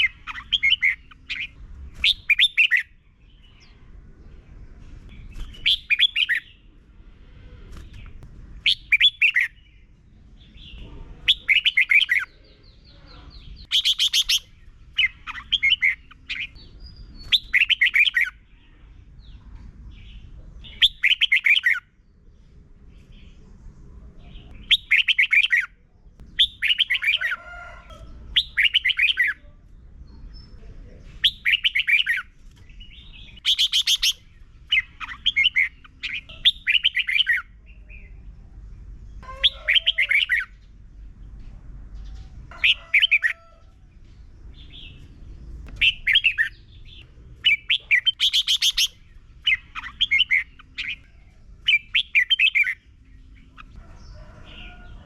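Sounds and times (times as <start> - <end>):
bird singing warbled phrases: 0.0 - 22.2, 22.9 - 40.8, 44.4 - 55.0.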